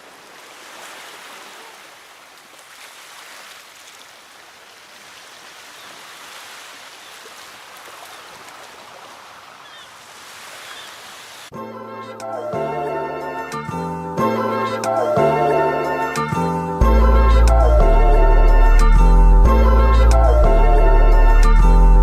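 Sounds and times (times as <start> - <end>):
rushing water: 0.0 - 11.5.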